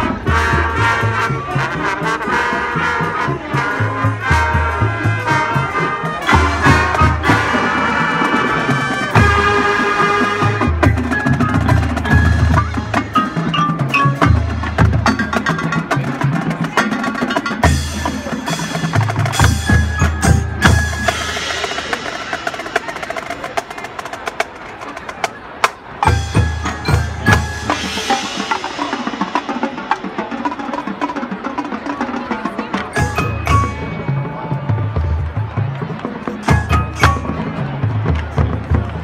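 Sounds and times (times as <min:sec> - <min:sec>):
ringing mallet keyboard notes: 0:11.1 - 0:15.8, 0:32.9 - 0:34.9.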